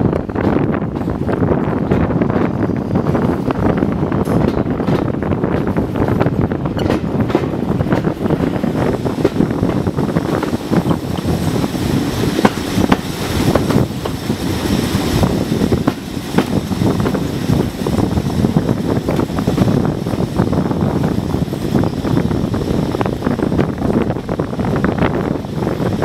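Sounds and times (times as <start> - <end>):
wheels rumbling on rails: 0.0 - 26.0
wind buffeting microphone: 0.0 - 26.0
sharp clicks and knocks: 6.7 - 8.6.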